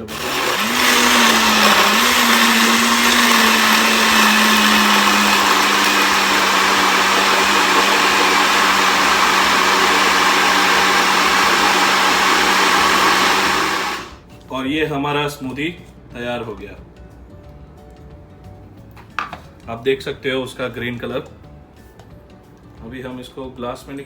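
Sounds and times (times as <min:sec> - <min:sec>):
electric blender whirring: 0:00.0 - 0:14.2.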